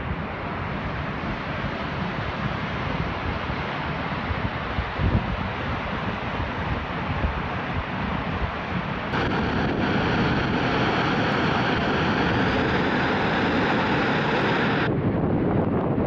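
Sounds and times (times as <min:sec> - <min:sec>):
volcano vent roaring: 0:09.1 - 0:15.0.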